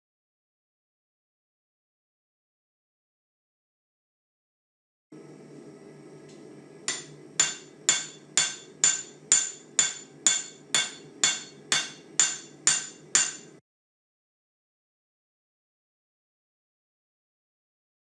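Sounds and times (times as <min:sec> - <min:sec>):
hammer striking steel on anvil: 0:06.9 - 0:13.6.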